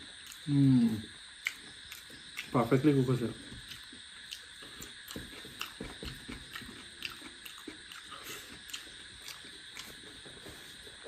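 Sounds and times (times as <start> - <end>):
man chewing: 0.0 - 2.6, 3.4 - 11.0.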